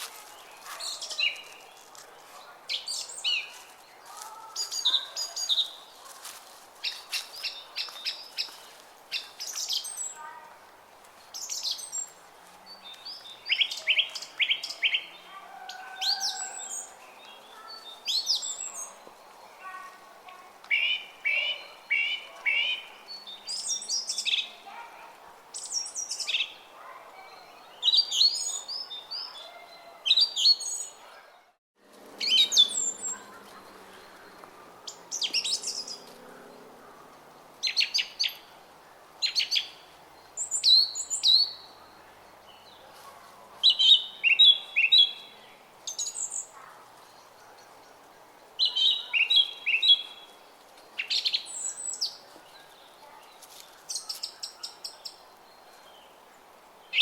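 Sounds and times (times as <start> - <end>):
songbirds chirping: 0.0 - 57.0
brook murmuring: 32.3 - 37.3.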